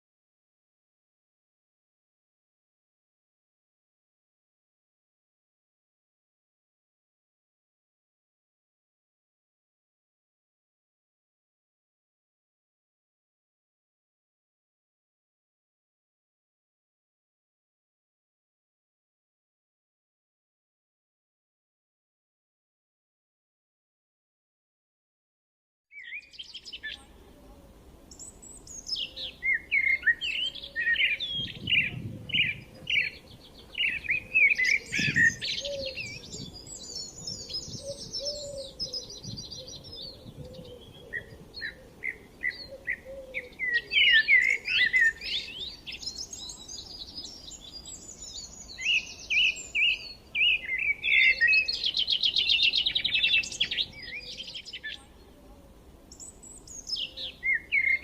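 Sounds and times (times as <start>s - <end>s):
birds chirping and singing: 26.0s - 27.1s, 28.1s - 58.0s.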